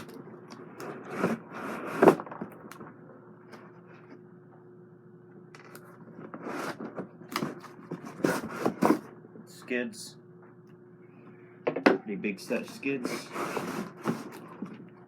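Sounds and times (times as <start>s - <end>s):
packaging scraping and rustling: 0.8s - 2.6s, 5.7s - 9.1s, 12.5s - 14.8s.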